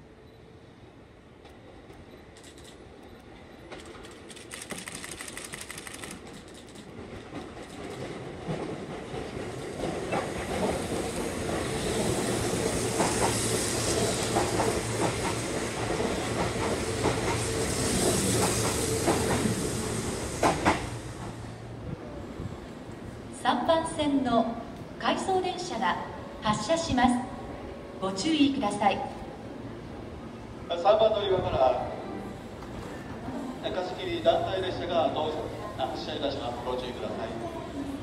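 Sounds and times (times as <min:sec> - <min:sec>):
train motors humming: 0:01.2 - 0:23.6
sharp train clacks: 0:01.4 - 0:21.5
train wheels clicking over rail joints: 0:03.6 - 0:21.4.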